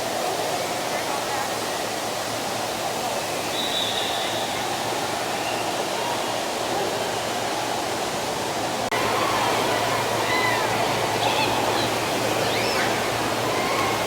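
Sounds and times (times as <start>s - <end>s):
faint distant voices: 0.0s - 14.0s
steady wash of noise: 4.0s - 14.0s.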